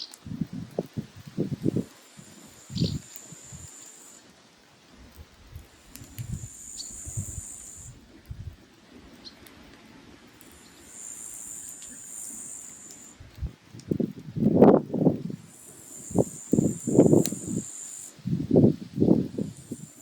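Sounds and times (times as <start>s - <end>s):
firewood crackling and popping: 0.0s - 20.0s
insect stridulating: 1.3s - 4.5s, 5.7s - 8.0s, 10.4s - 13.2s, 14.7s - 20.0s.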